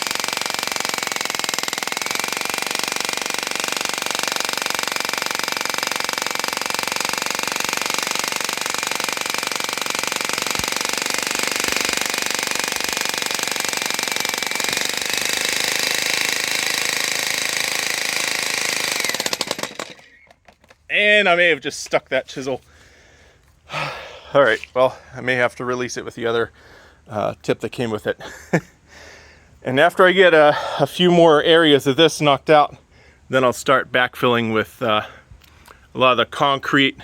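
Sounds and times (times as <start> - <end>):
jackhammer hammering concrete: 0.0 - 20.5.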